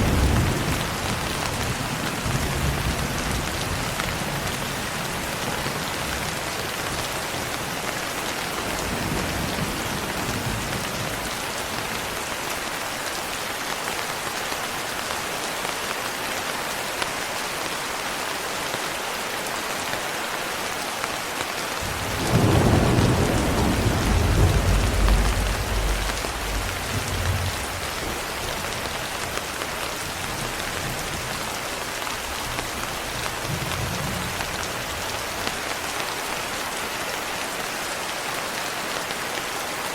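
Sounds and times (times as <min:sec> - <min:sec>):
heavy rain: 0:00.0 - 0:39.9
thunderclap rumbling: 0:21.8 - 0:29.3
distant thunder rumbles: 0:21.8 - 0:31.4.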